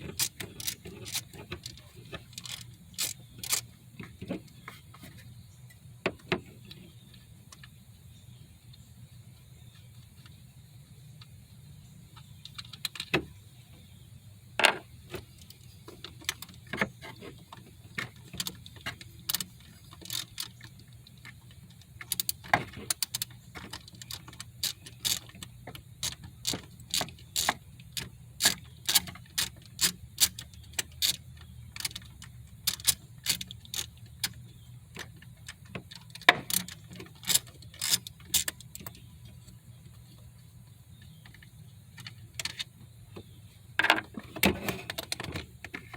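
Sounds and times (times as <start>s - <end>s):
hand tools clicking on bolts: 0.0s - 3.7s, 15.4s - 39.0s
low steady hum: 0.0s - 45.9s.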